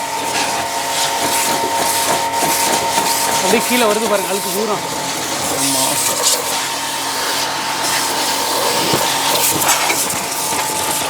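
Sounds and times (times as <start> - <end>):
pressure washer motor humming: 0.0 - 11.0
water jet spraying: 0.0 - 11.0.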